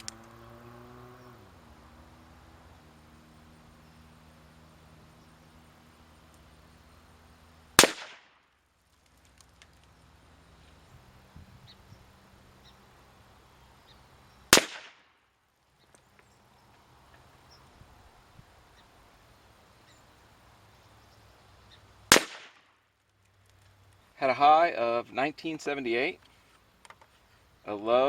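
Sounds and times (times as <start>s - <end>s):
faint clicks: 0.0s - 0.4s
rifle shots with echo: 7.8s - 8.4s, 14.5s - 15.1s, 22.1s - 22.8s.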